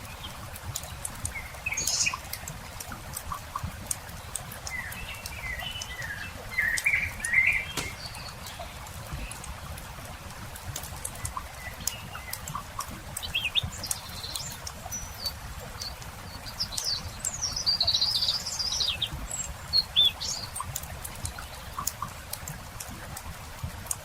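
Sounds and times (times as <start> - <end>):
songbird chirping and warbling: 1.3 - 2.4, 4.7 - 9.4.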